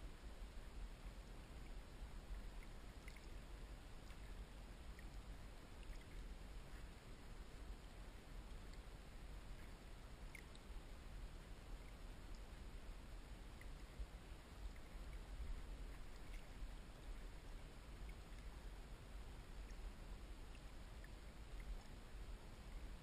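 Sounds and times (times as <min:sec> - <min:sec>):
faint low rumble: 0:00.0 - 0:23.0
water dripping: 0:02.4 - 0:03.4, 0:04.0 - 0:06.9, 0:07.8 - 0:10.8, 0:11.8 - 0:18.6, 0:19.5 - 0:22.1
water sloshing: 0:13.5 - 0:18.6.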